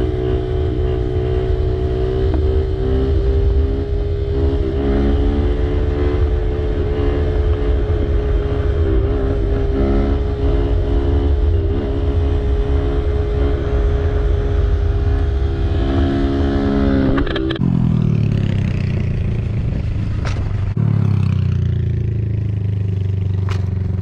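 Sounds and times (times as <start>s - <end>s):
wind rumble on microphone: 0.0s - 20.8s.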